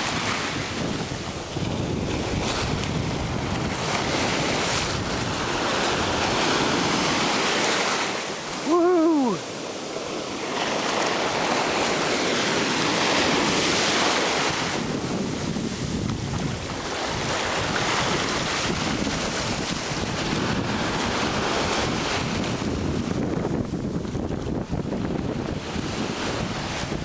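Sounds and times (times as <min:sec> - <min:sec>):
ocean surf washing onto beach: 0:00.0 - 0:27.0
wind buffeting microphone: 0:00.0 - 0:27.0
person shouting woo: 0:08.6 - 0:09.4.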